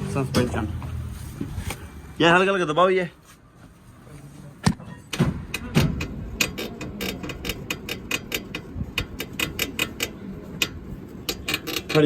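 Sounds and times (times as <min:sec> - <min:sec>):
car suspension creaking and clicking: 0:04.9 - 0:12.0.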